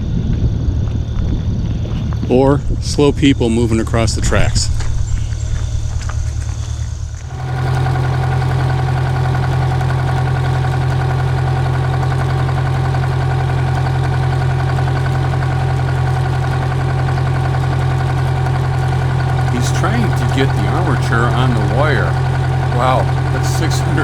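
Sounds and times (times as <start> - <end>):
machinery idling hum: 5.4 - 24.0.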